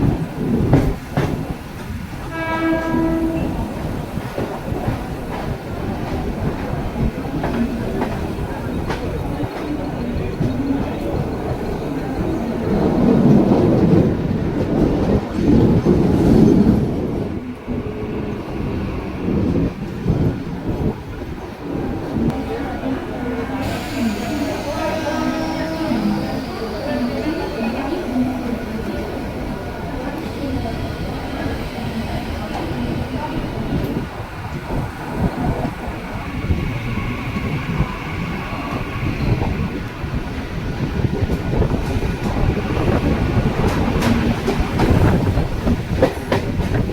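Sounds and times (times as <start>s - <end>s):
electric train rumbling: 0.0s - 46.9s.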